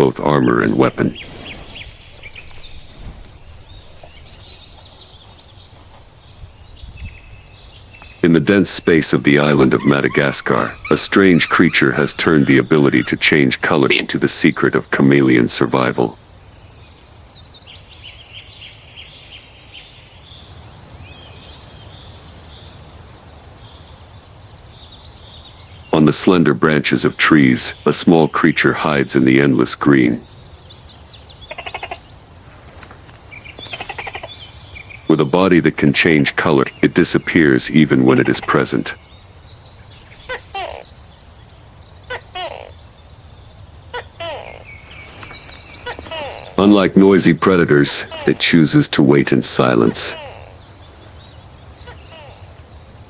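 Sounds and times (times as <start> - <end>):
bird chirping: 0.0 - 53.0
chirping trill: 8.2 - 15.4, 39.8 - 42.9, 43.5 - 50.8
animal call with falling tone: 8.7 - 14.1, 40.2 - 41.0, 42.1 - 42.8, 43.9 - 44.7, 45.8 - 50.6, 51.8 - 52.5.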